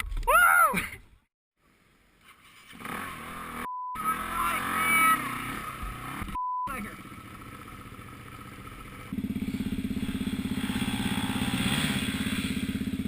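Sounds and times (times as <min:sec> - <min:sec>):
dirt bike engine revving: 0:02.7 - 0:13.0.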